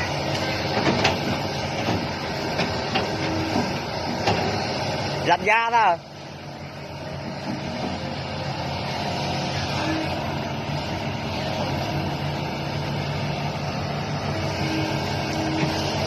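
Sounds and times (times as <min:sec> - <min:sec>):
toy excavator motor droning: 0:07.9 - 0:16.0.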